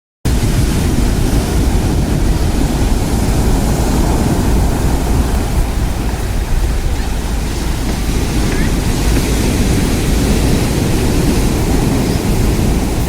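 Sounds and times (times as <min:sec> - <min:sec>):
deep heavy rumble: 0:00.3 - 0:13.0
heavy surf on pebble beach: 0:00.3 - 0:13.0.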